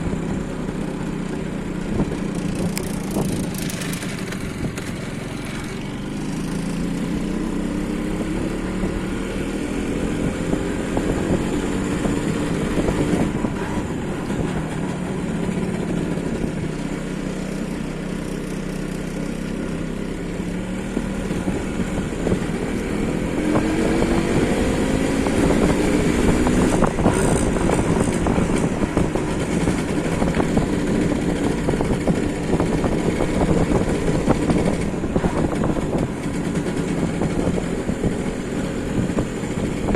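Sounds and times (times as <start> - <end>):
two-stroke motorcycle engine running: 0.0 - 39.9.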